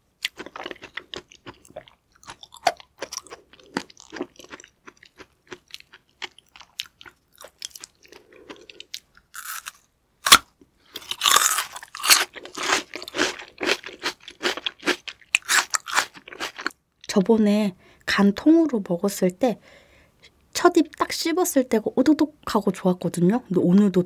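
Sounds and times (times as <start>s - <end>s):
crunchy chewing: 0.2s - 16.8s.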